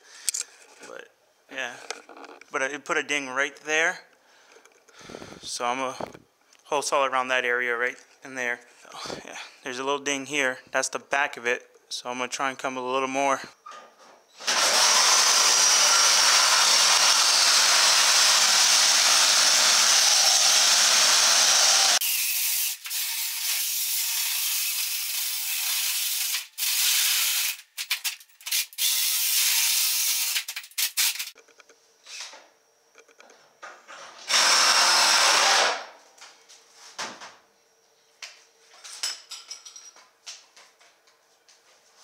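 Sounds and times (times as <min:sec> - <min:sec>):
drill hole saw cutting metal: 0:14.4 - 0:27.7, 0:28.5 - 0:31.4, 0:34.3 - 0:35.9.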